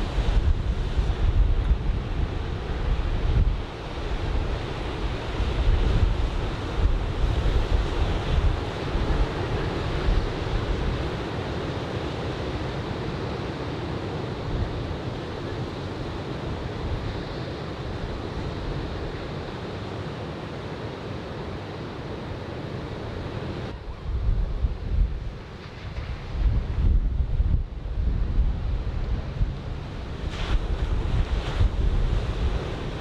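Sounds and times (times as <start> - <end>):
wind buffeting microphone: 0.0 - 11.4, 23.6 - 33.0
ocean surf washing onto beach: 0.0 - 33.0.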